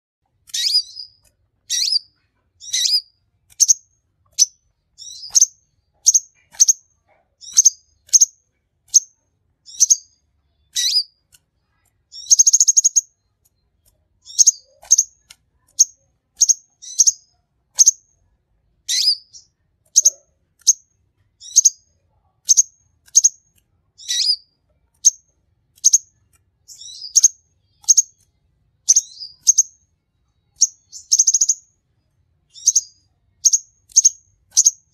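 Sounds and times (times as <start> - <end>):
bird chirping: 0.3 - 34.9
bird buzzy trill: 0.5 - 3.8.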